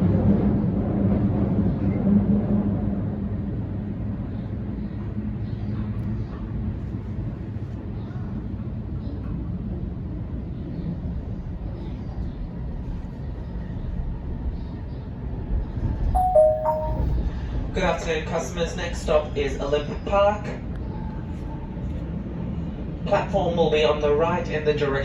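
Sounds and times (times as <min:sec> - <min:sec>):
falling two-note chime: 0:16.2 - 0:17.2.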